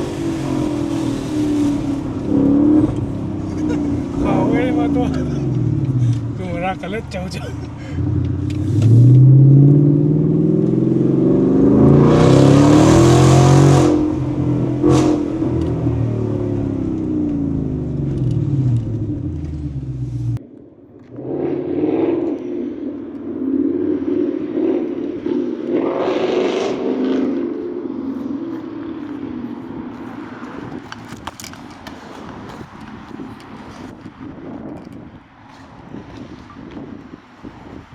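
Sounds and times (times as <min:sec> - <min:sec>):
car engine revving: 0:00.0 - 0:20.4, 0:21.0 - 0:30.7.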